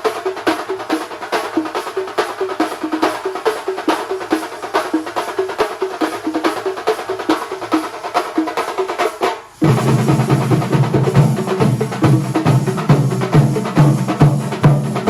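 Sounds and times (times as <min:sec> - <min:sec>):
percussion ensemble drumming: 0:00.0 - 0:15.0.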